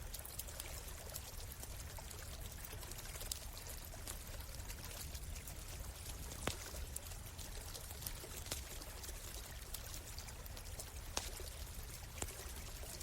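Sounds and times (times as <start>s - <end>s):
campfire crackling: 0.0s - 13.0s
stream water flowing: 0.0s - 13.0s.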